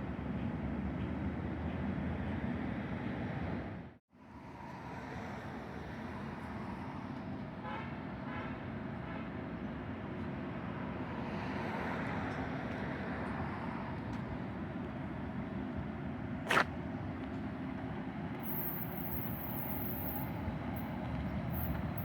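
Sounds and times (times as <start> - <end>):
train rumbling past: 10.7 - 22.0.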